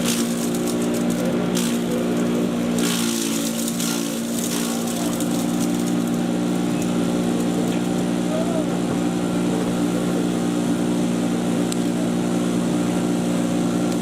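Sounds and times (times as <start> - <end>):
chipper shredder motor hum: 0.0 - 14.0.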